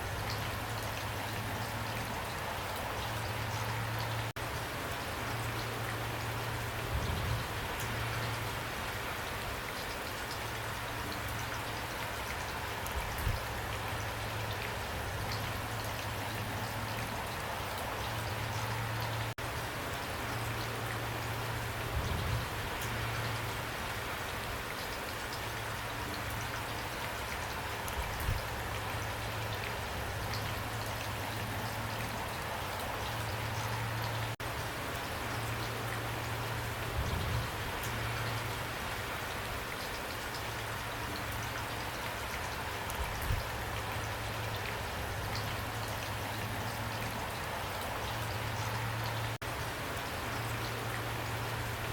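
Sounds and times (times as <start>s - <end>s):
heavy rain pouring: 0.0s - 51.9s.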